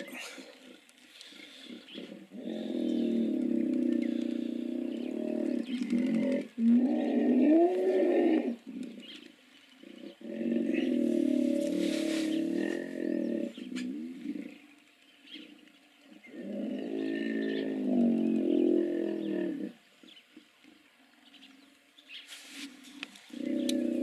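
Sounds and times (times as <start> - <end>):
hippopotamus calls: 9.9 - 14.6, 23.1 - 24.0.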